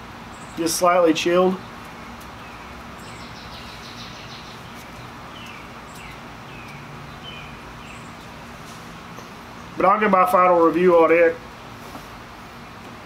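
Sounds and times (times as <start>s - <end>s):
outdoor background noise: 0.0s - 13.0s
bird chirping: 0.3s - 0.8s, 1.6s - 9.9s.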